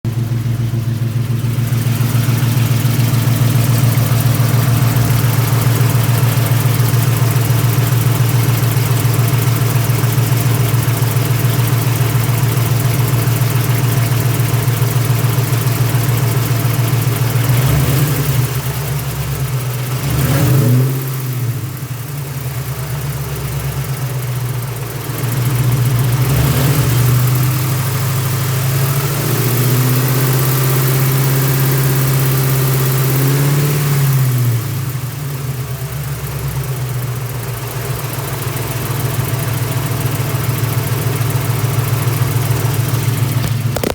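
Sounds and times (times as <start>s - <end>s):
car engine idling: 0.0s - 43.9s
engine rattle or clicking: 37.0s - 43.9s.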